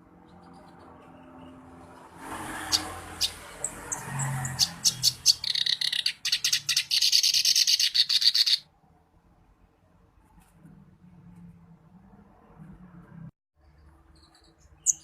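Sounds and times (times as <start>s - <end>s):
reed warbler singing: 2.4s - 8.6s, 14.1s - 15.0s.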